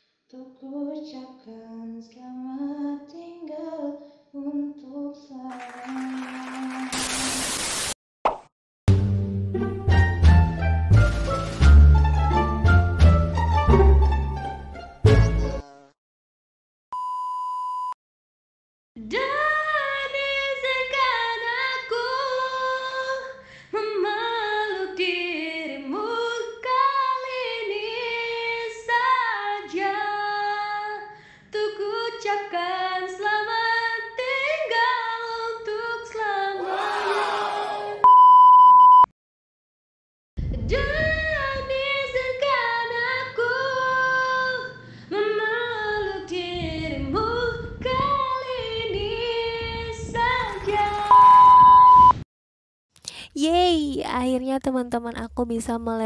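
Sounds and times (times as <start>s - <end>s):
woman singing unaccompanied: 0.4s - 6.9s
short beep: 16.9s - 18.0s, 38.0s - 39.1s, 51.1s - 52.2s.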